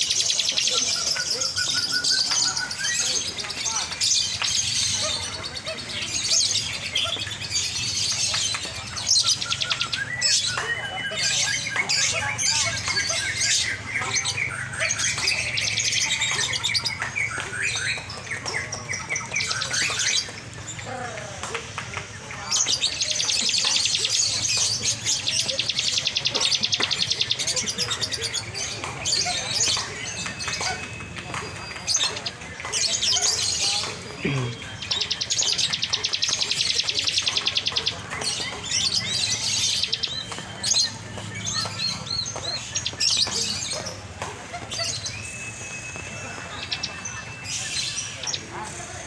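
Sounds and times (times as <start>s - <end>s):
lovebirds chirping and squawking: 0.0s - 49.0s.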